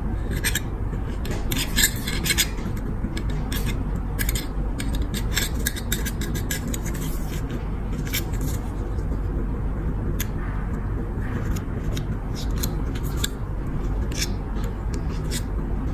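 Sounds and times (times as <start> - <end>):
low background rumble: 0.0 - 15.9
scraping and rubbing on lighter parts: 0.1 - 9.3, 10.1 - 15.9.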